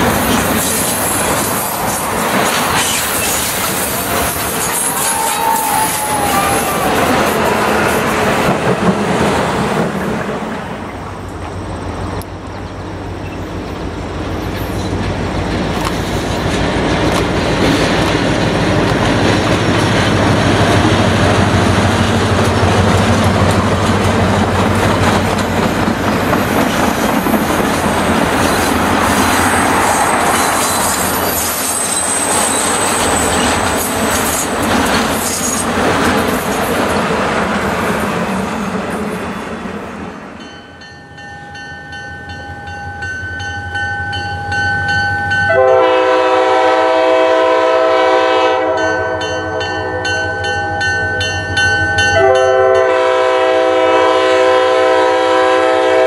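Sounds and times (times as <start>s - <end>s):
train coaches rolling on rails: 0.0s - 56.0s
high wheel squeal: 0.6s - 7.8s, 28.4s - 34.6s.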